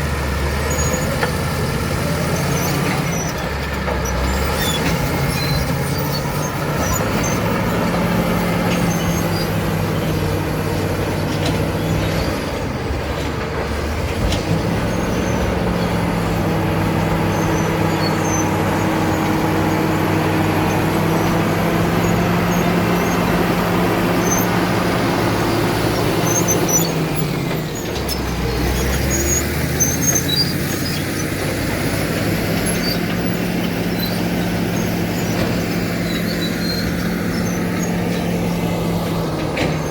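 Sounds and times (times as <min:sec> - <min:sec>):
bulldozer diesel engine running: 0:00.0 - 0:39.9
short high squeaks: 0:02.2 - 0:09.7, 0:17.2 - 0:19.6, 0:24.1 - 0:31.4, 0:32.6 - 0:39.9.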